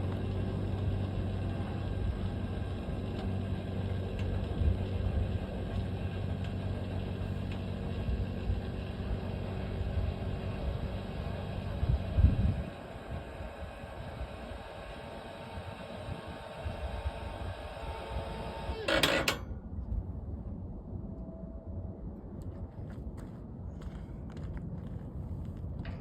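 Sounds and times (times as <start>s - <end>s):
motor humming: 0.0s - 19.4s.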